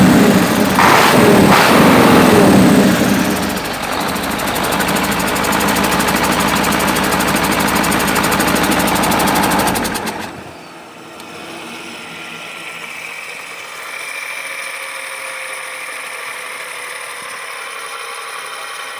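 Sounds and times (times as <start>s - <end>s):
diesel truck engine running: 0.0s - 13.5s.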